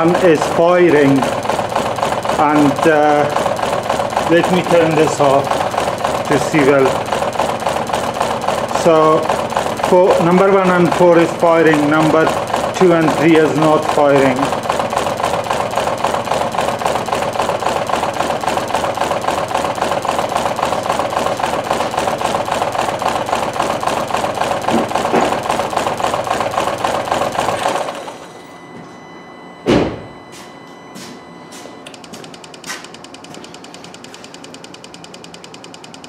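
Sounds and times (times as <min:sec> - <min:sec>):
thump: 0:29.6 - 0:30.1.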